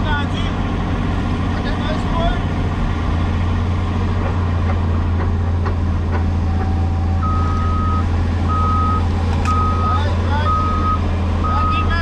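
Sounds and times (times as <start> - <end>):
excavator diesel engine running: 0.0 - 12.0
backup alarm beeping: 6.7 - 11.9.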